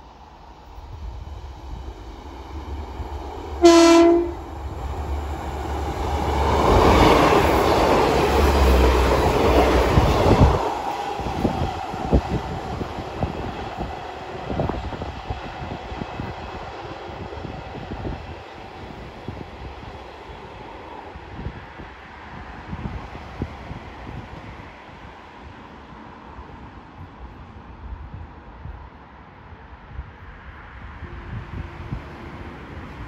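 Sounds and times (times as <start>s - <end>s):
train rushing past: 0.0s - 25.0s, 30.6s - 33.0s
train horn blast: 3.6s - 4.5s.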